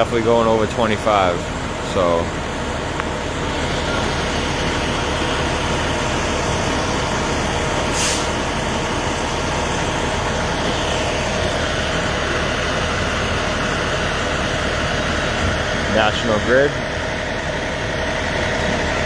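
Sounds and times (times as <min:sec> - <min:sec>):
heavy truck engine idling: 0:00.0 - 0:19.0
air hiss: 0:07.9 - 0:08.4.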